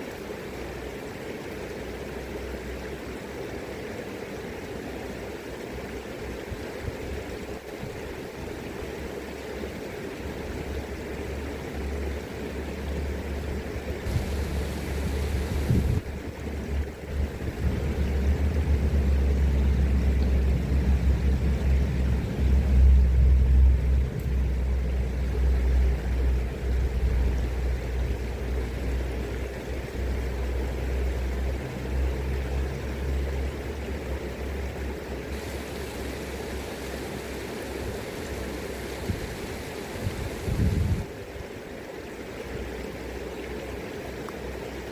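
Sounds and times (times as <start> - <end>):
river water flowing: 0.0 - 44.9
wind buffeting microphone: 14.0 - 19.8, 37.7 - 41.1.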